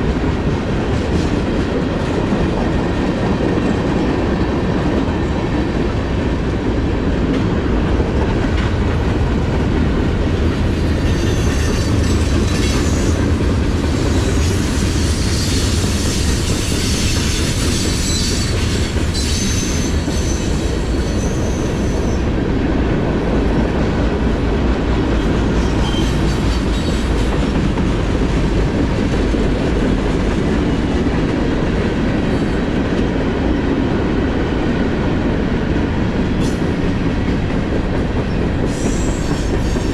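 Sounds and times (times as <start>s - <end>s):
high-pitched wheel squeal: 14.0s - 22.2s.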